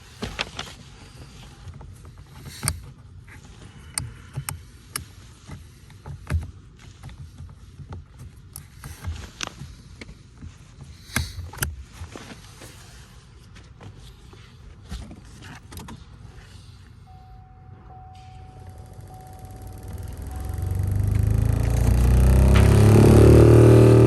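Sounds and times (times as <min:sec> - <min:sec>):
blower motor rumbling: 0:17.1 - 0:24.0.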